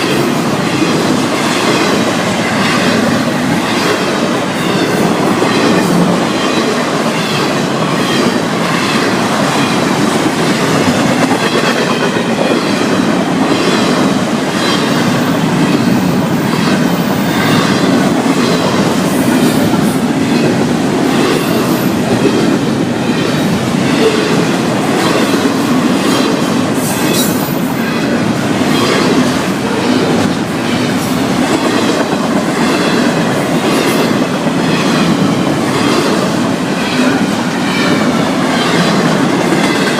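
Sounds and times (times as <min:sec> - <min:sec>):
clickety-clack over rail joints: 0:00.0 - 0:39.9
freight train wheels rumbling: 0:00.0 - 0:39.9.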